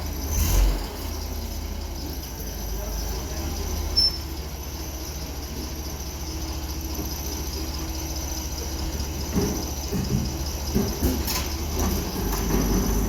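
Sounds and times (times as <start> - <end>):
faint high squeal: 3.8 - 4.3
knocks: 9.3 - 13.0.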